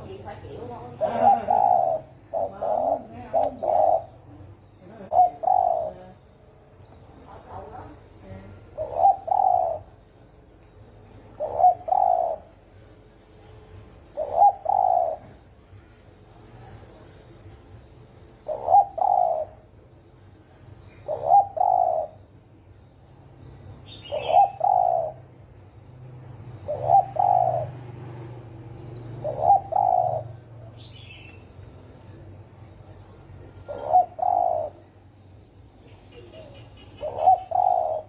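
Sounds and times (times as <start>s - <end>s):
dove cooing: 0.0s - 6.3s, 7.6s - 10.1s, 11.2s - 12.8s, 14.0s - 15.6s, 18.4s - 19.7s, 20.8s - 22.3s, 23.9s - 25.5s, 26.3s - 31.3s, 33.5s - 35.0s, 35.8s - 38.0s
small bird chirping: 0.0s - 16.7s, 18.4s - 19.8s, 20.7s - 25.7s, 26.5s - 38.0s.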